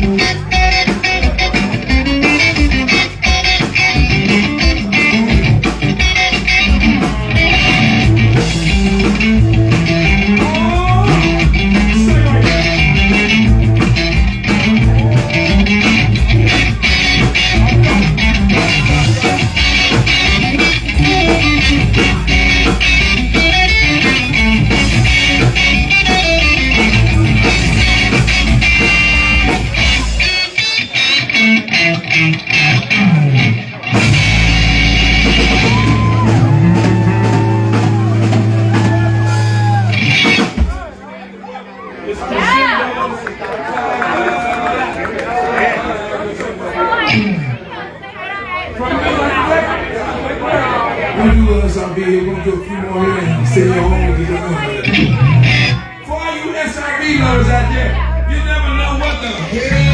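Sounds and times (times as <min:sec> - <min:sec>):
drums: 0:00.0 - 0:41.4, 0:53.3 - 0:56.1, 0:58.8 - 0:59.9
bass guitar: 0:00.0 - 0:42.8, 0:47.0 - 0:47.7, 0:51.2 - 0:56.0, 0:56.8 - 0:59.9
electric guitar lead: 0:00.0 - 0:43.0, 0:46.9 - 0:48.8, 0:53.0 - 0:56.0, 0:57.1 - 0:59.9.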